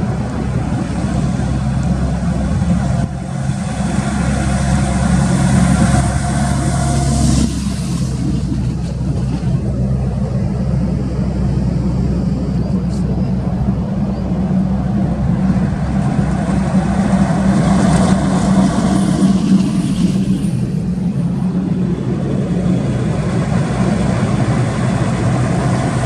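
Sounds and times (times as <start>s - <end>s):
heavy vehicle engine humming: 0.0s - 26.0s
highway traffic noise: 0.0s - 26.0s.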